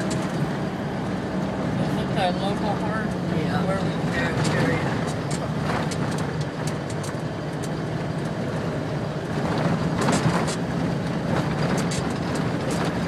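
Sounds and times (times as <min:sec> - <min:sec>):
road noise: 0:00.0 - 0:13.0
vehicle engine drone: 0:00.0 - 0:13.0
clicks and knocks from bumps: 0:11.3 - 0:13.0.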